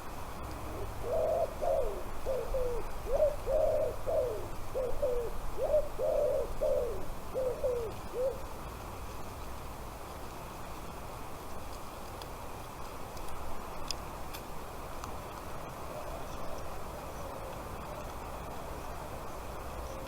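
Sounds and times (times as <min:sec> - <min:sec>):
bird calling: 0:00.7 - 0:08.5.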